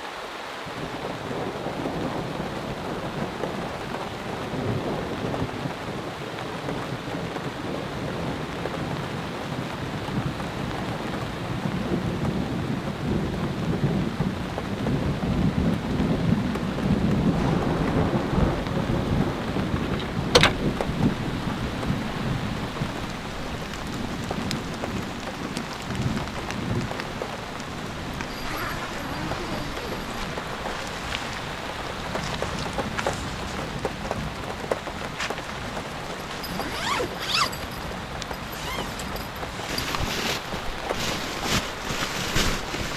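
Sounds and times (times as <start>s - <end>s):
heavy rain falling: 14.4s - 36.5s
thunder rumbling: 17.1s - 32.6s.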